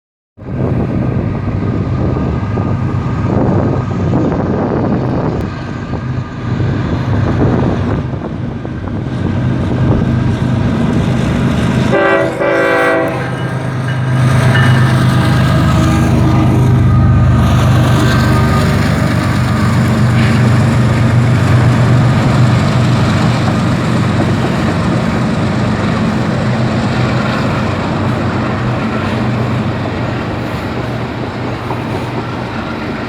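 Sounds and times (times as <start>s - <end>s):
diesel locomotive humming: 0.4s - 33.0s
train cars rumbling on rails: 0.4s - 33.0s
train horn: 11.9s - 13.7s, 14.5s - 20.7s.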